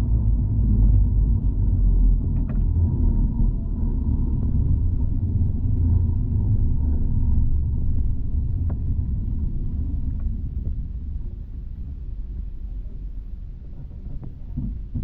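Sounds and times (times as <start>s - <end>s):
tram wheels rumbling on rails: 0.0s - 15.0s.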